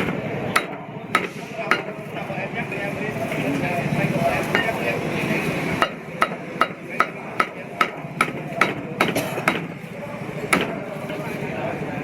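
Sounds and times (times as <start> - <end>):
cleaver chopping meat: 0.0 - 2.0, 5.8 - 9.7, 10.5 - 10.8.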